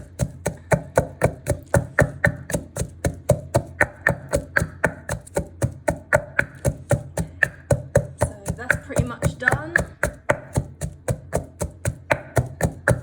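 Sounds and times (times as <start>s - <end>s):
pestle pounding in a mortar: 0.0s - 13.0s.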